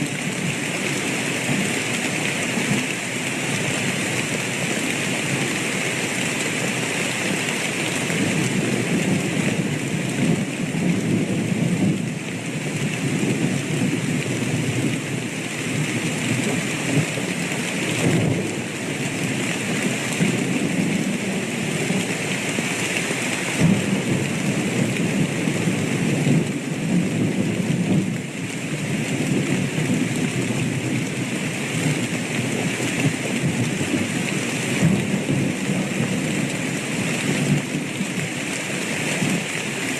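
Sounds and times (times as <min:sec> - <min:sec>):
steady rain falling: 0:00.0 - 0:39.9
low rolling thunder: 0:08.4 - 0:15.3, 0:17.9 - 0:18.8, 0:23.6 - 0:28.3.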